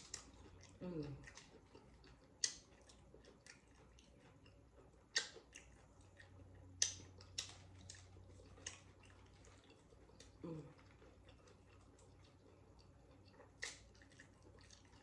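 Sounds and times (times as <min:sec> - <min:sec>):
chewing crunchy chips: 0:00.0 - 0:15.0.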